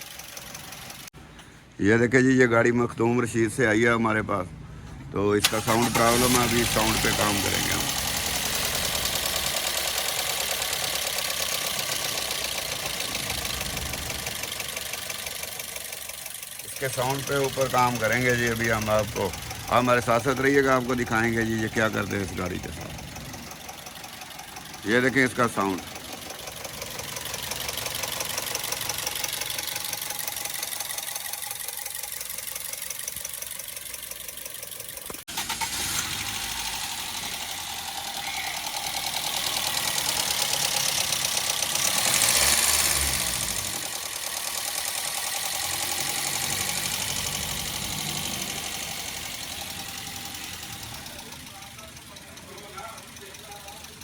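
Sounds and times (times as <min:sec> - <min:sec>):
ticking clatter from engine: 0:00.0 - 0:01.2, 0:05.5 - 0:54.0
car engine idling: 0:00.0 - 0:01.6, 0:04.5 - 0:54.0
fast ticking tappet noise: 0:43.6 - 0:54.0.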